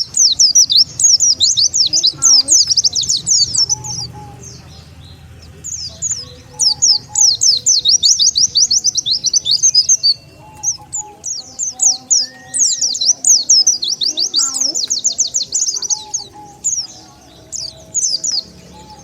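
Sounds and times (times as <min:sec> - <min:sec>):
high downward-sliding bird chirps: 0:00.0 - 0:19.0.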